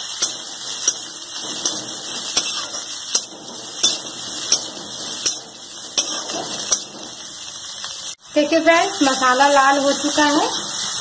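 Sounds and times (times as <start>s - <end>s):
metal spatula scraping pan: 0.0s - 7.8s
onions sizzling in oil: 0.0s - 11.0s.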